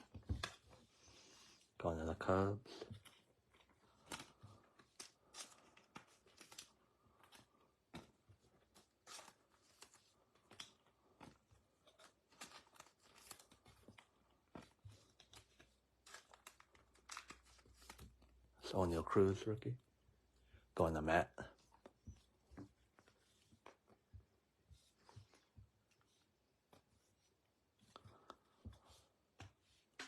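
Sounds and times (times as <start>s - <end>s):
trading cards and packaging crinkling: 2.2s - 19.8s.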